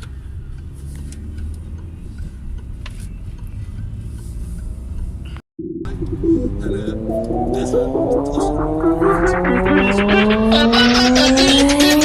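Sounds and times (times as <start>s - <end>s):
car cabin engine and road rumble: 0.0s - 5.4s.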